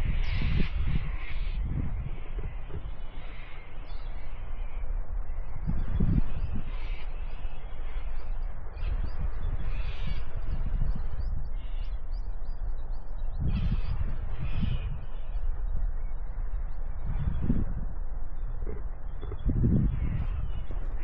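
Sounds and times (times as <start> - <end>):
harsh rasping bird calls: 0.0 - 4.8, 13.3 - 16.2, 18.4 - 21.0
low rumbling noise: 0.0 - 21.0.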